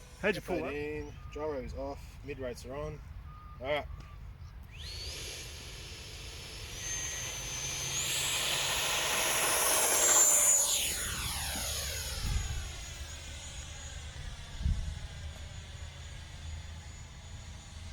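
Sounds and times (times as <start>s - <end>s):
model jet whine passing: 4.7s - 17.9s.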